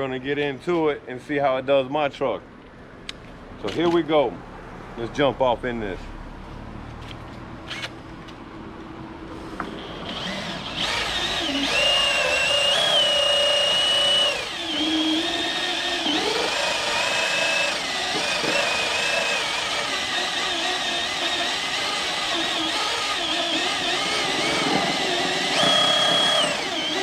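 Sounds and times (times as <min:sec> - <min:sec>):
drill motor whine: 0:10.0 - 0:27.0.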